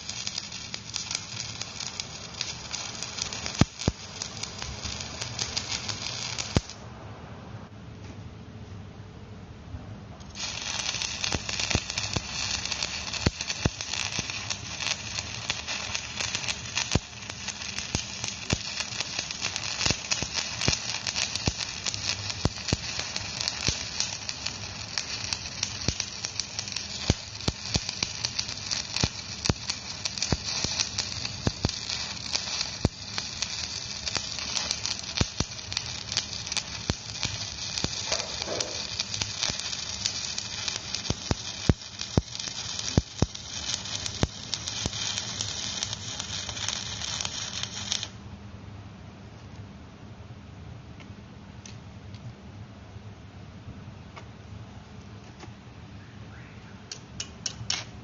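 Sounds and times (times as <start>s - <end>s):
welding arc crackling: 0.0s - 6.8s, 10.3s - 48.2s, 56.9s - 58.0s.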